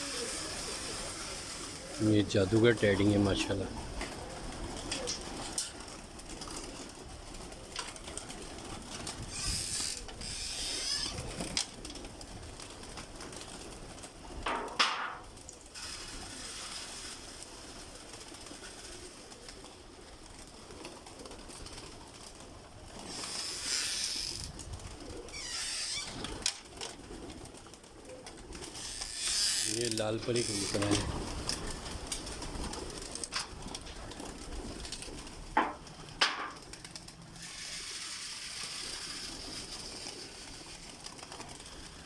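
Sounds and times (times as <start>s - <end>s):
pigeons cooing: 0.0s - 14.3s, 15.8s - 42.0s
rustling: 0.0s - 42.0s.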